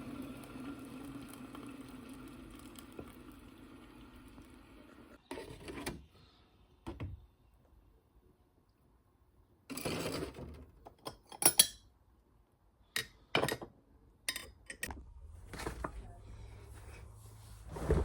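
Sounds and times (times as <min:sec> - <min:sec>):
crockery and cutlery clinking: 0:11.0 - 0:11.9
low steady hum: 0:14.3 - 0:18.0.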